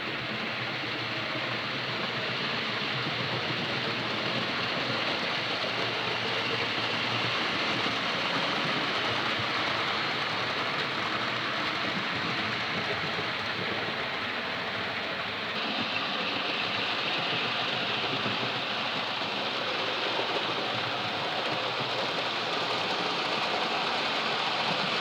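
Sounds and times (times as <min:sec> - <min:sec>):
model train wheels on rail: 0:00.0 - 0:25.0.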